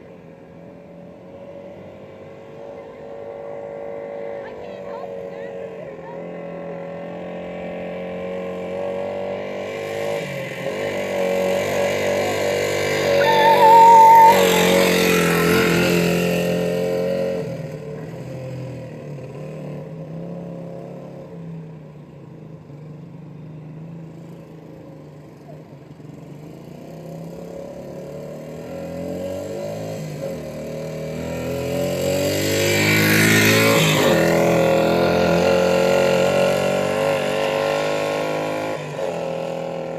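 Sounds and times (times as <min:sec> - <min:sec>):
dirt bike engine riding past: 0:09.6 - 0:17.7, 0:28.2 - 0:39.9.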